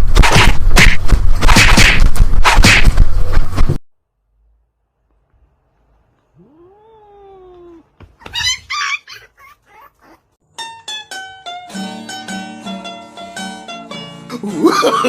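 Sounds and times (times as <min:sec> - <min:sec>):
shrill wavering cat cries: 0:06.5 - 0:10.1
plucked-string music: 0:10.5 - 0:15.0.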